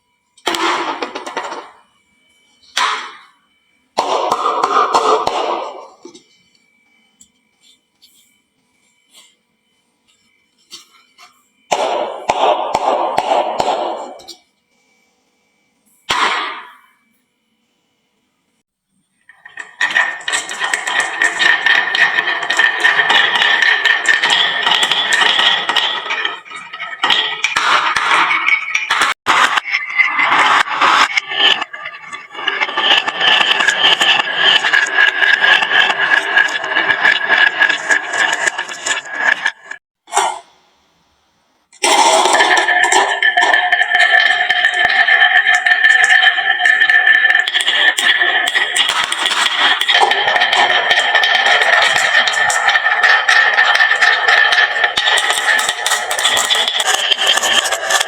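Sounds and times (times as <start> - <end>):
marbles rolling down wooden run: 19.3 - 39.8, 41.8 - 58.0.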